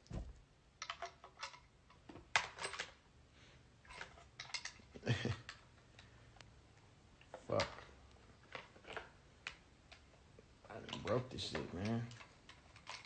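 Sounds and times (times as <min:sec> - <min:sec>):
gun parts clicking and rattling: 0:00.8 - 0:03.0, 0:03.8 - 0:06.1, 0:07.3 - 0:10.1, 0:10.7 - 0:13.0.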